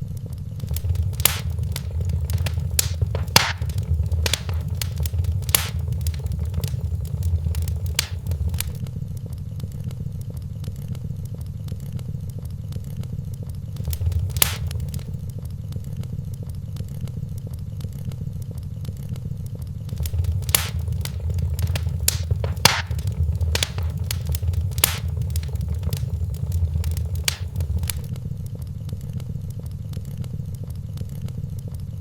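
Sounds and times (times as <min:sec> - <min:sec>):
fire low rumble: 0:00.6 - 0:08.8, 0:13.8 - 0:15.3, 0:19.9 - 0:28.1
wood fire crackling and popping: 0:00.6 - 0:08.8, 0:13.8 - 0:15.2, 0:19.9 - 0:28.1.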